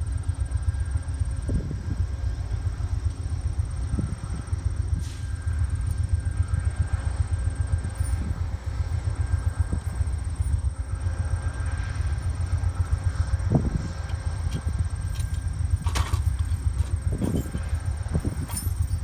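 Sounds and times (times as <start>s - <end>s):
passenger train rumbling: 0.0s - 19.0s.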